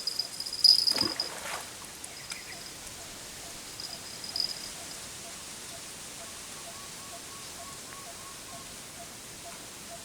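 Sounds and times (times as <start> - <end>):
cricket trilling: 0.0 - 1.2, 2.1 - 5.0.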